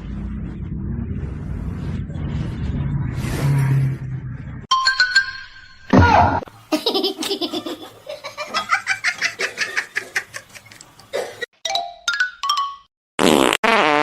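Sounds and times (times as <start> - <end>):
person laughing hard: 6.7 - 11.4.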